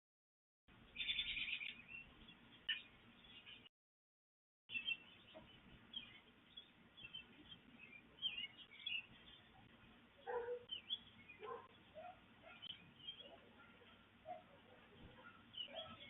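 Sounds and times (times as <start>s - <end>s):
birds chirping: 0.7s - 3.7s, 4.7s - 16.0s
lower bird calls: 0.9s - 2.8s.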